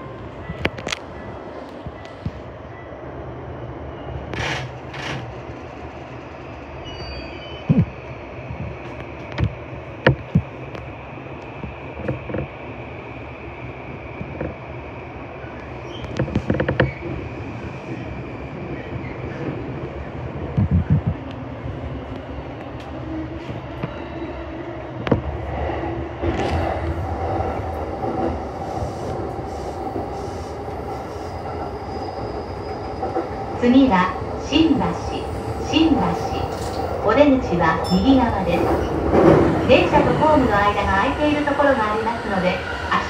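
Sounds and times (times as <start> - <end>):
train cabin rumble: 15.4 - 43.0.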